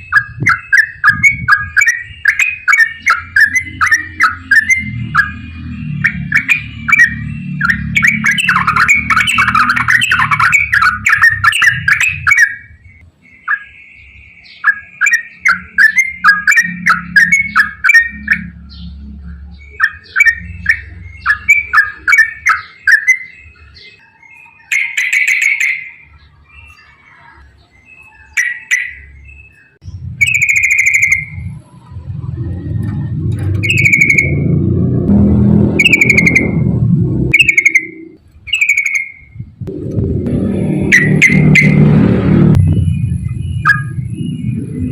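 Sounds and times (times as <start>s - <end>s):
low rumbling noise: 0.0s - 13.2s, 15.6s - 22.4s, 29.8s - 38.5s, 39.2s - 44.9s
bird singing chattering notes: 0.0s - 44.9s
low steady hum: 39.4s - 44.9s.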